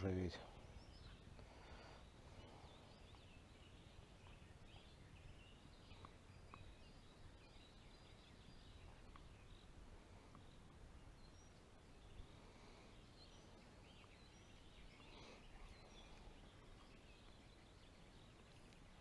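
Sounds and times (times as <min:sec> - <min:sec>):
faint bird chirps: 0:00.0 - 0:19.0.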